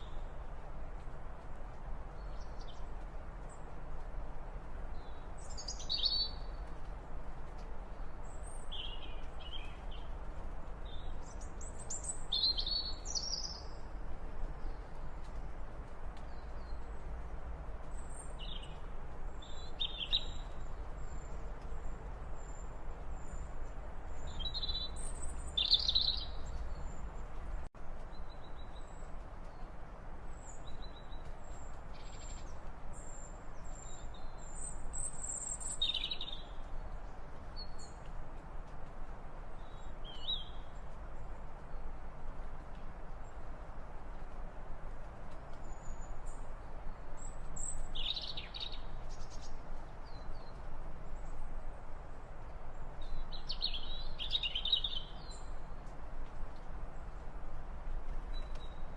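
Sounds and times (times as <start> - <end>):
small birds chirping: 4.9 - 38.8, 45.3 - 51.7, 52.7 - 56.0.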